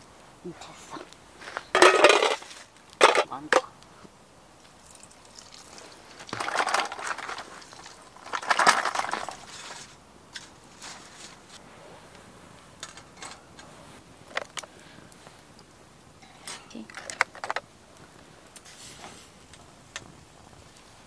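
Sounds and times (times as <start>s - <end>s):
wire grill grate clinking: 1.7s - 3.4s, 12.8s - 13.7s, 16.2s - 17.7s
oyster shells clattering on metal: 1.7s - 3.7s, 6.3s - 10.5s, 12.8s - 13.6s.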